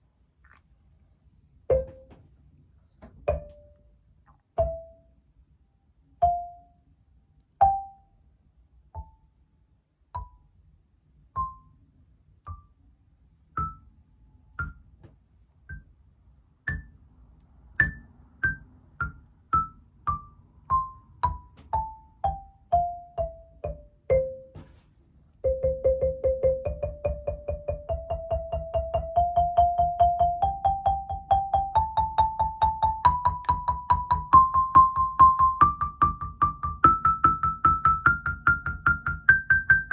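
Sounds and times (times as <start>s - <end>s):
xylophone struck with mallets: 1.7s - 2.1s, 3.3s - 3.8s, 4.6s - 5.0s, 6.2s - 6.7s, 7.6s - 8.0s, 10.2s - 10.4s, 13.6s - 13.9s, 17.8s - 24.5s, 25.5s - 39.9s.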